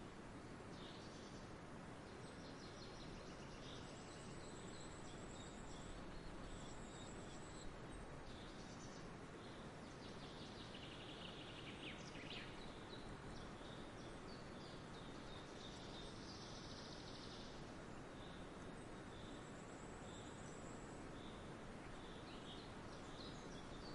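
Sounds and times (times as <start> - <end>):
outdoor background hiss: 0.0 - 23.9.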